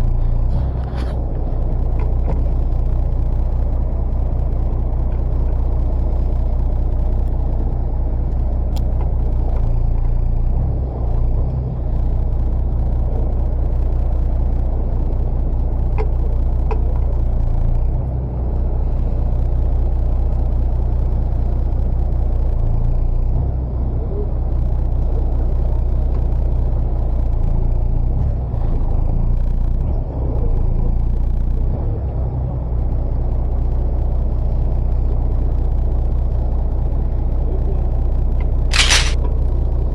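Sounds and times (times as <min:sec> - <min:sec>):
faint short clicks: 0:38.7 - 0:39.3.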